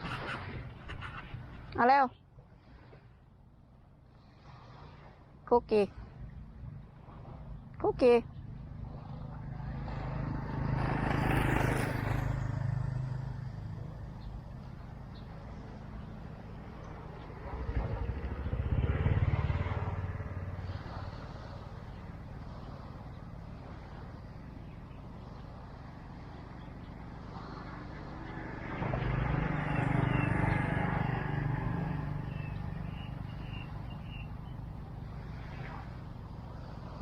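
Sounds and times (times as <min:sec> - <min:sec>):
outdoor background noise: 0:00.0 - 0:37.0
vehicle engine passing by: 0:08.4 - 0:37.0.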